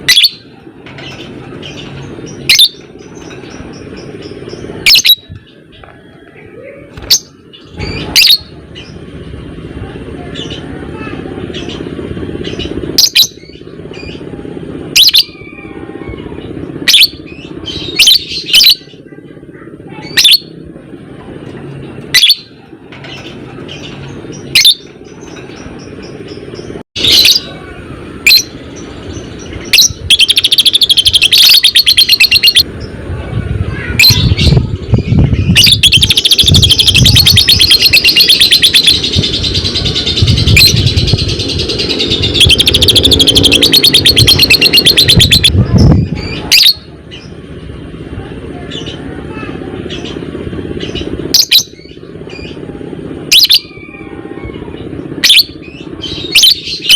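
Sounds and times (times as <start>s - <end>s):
lovebird chattering trill: 0.0s - 0.4s, 1.0s - 5.4s, 7.0s - 9.0s, 11.5s - 14.2s, 14.9s - 15.4s, 20.0s - 20.5s, 24.3s - 24.9s, 29.2s - 32.7s, 34.0s - 47.3s, 50.8s - 52.6s, 53.3s - 53.8s, 55.2s - 56.9s
lovebird shrill calls: 4.8s - 5.3s, 29.7s - 32.6s, 35.4s - 45.6s.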